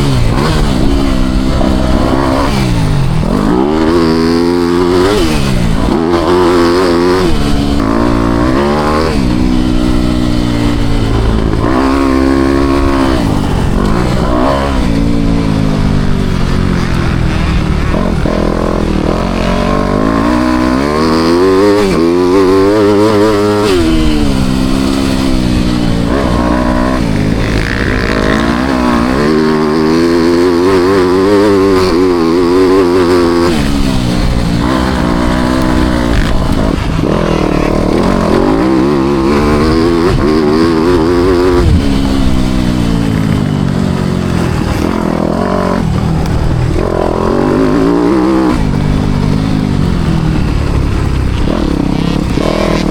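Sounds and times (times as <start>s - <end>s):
motocross bike engine revving: 0.0s - 52.9s.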